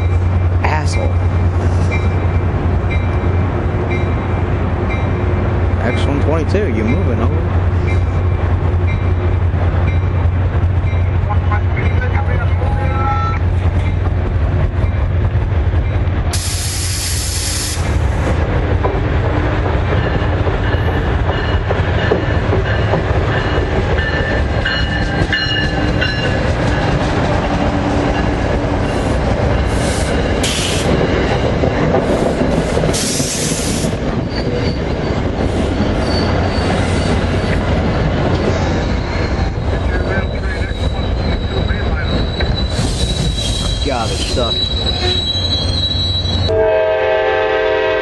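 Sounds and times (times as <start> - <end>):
train rumbling: 0.0 - 48.0
high hiss and squeal: 38.6 - 46.5.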